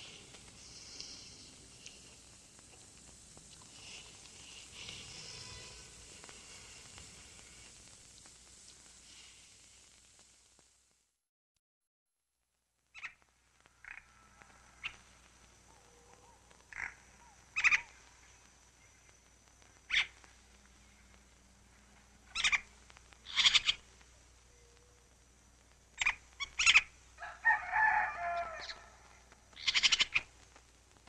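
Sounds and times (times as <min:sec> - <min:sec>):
short sharp bird calls: 0:15.8 - 0:18.0, 0:19.9 - 0:20.2, 0:22.3 - 0:23.8, 0:29.6 - 0:30.3.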